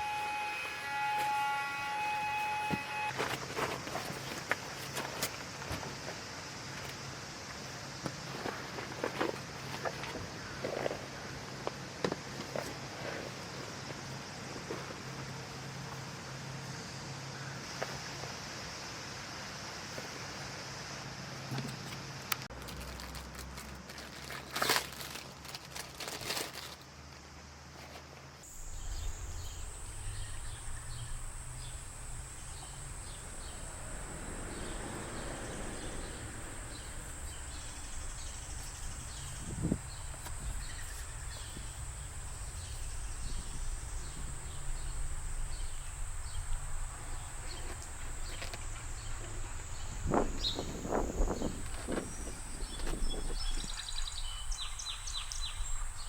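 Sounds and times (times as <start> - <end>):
insects droning: 0.0 - 56.0
low background rumble: 28.5 - 56.0.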